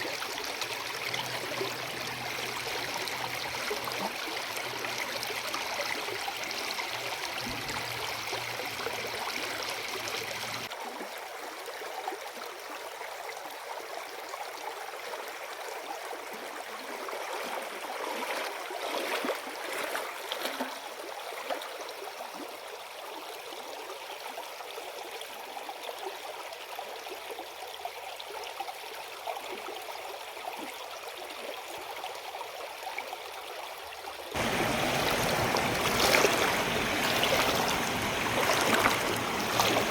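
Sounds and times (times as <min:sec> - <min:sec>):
river water rushing: 0:34.4 - 0:39.9.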